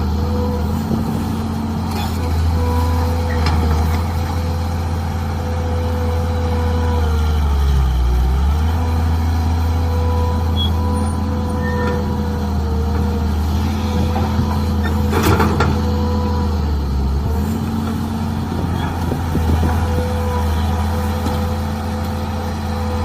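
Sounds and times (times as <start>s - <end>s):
small diesel engine running: 0.0s - 23.0s.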